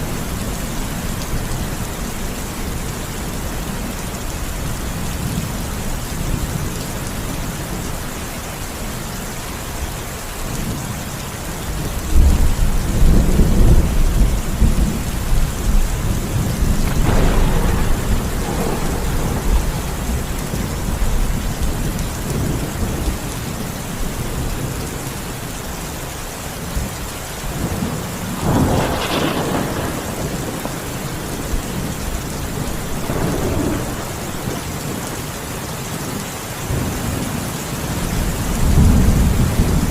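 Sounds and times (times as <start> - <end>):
steady rain: 0.0 - 39.9
rolling thunder: 12.1 - 23.4, 27.6 - 35.1, 37.9 - 39.9.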